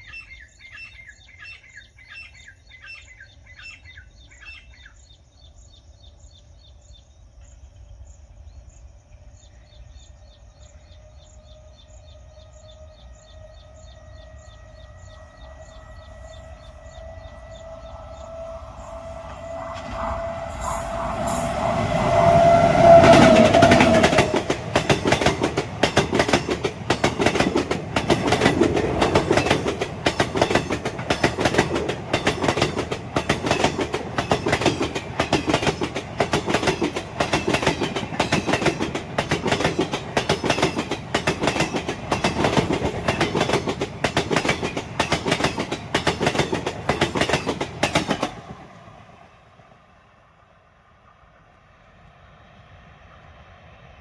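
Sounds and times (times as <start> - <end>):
train horn: 10.6 - 25.3
train wheels clattering on rails: 14.4 - 48.8.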